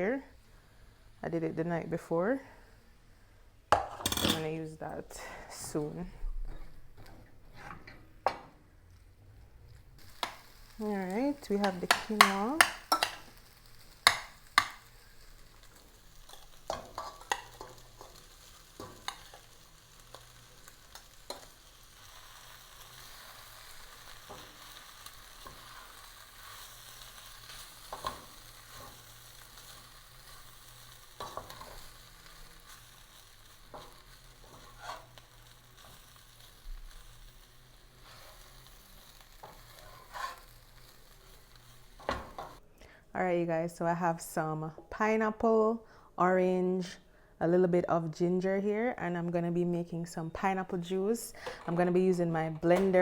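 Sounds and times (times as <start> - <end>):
food sizzling in a pan: 0.0 - 3.0, 9.6 - 42.6
utensil scraping a pan: 14.0 - 21.6, 22.2 - 42.6.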